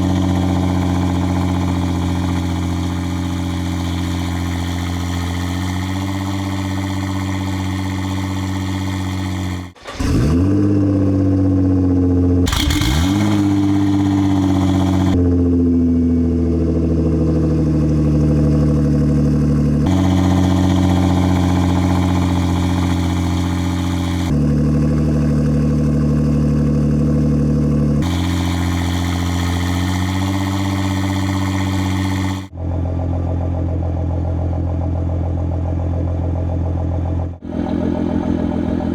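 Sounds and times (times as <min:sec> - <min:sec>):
car engine idling: 0:00.0 - 0:10.3, 0:11.0 - 0:15.7, 0:16.4 - 0:38.9
engine starting with rev flare: 0:00.0 - 0:11.2, 0:12.5 - 0:15.2, 0:19.9 - 0:24.4, 0:28.0 - 0:32.5.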